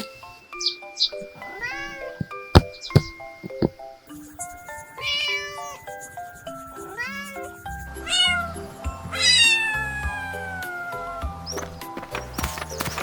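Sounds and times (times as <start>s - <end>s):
background music: 0.0s - 13.0s
cat meowing: 1.4s - 2.2s, 5.0s - 5.9s, 6.9s - 11.4s.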